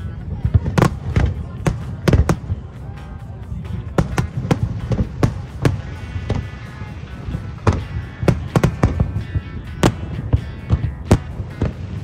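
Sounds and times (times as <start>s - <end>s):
music: 0.0s - 12.0s
firework shells bursting: 4.0s - 12.0s.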